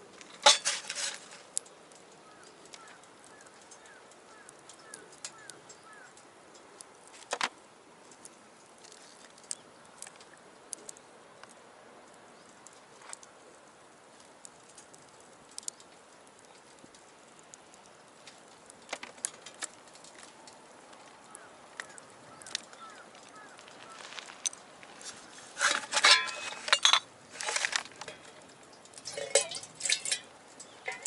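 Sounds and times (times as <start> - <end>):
faint steady hiss: 0.0 - 31.0
wood fire crackling and popping: 0.0 - 31.0.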